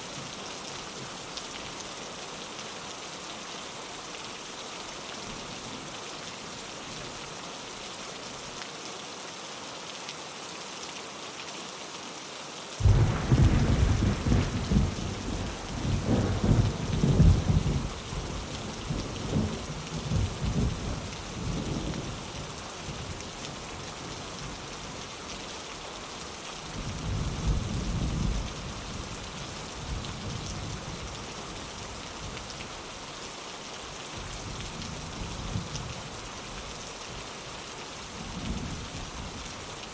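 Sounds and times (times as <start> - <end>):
rain falling on a window: 0.0 - 39.9
thunder rumbling: 12.8 - 21.0.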